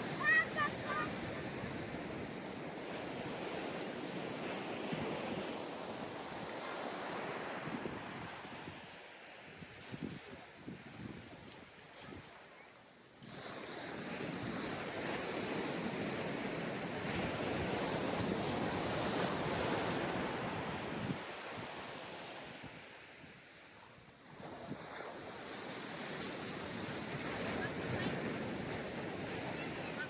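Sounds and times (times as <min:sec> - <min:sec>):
surf washing onto beach: 0:00.0 - 0:11.9, 0:13.2 - 0:30.0
wind on microphone: 0:09.5 - 0:12.4, 0:13.3 - 0:21.8.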